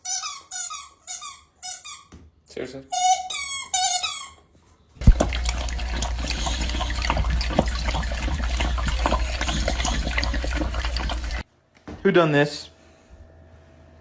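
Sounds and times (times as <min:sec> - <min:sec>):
rushing splashing water: 0:05.0 - 0:11.4.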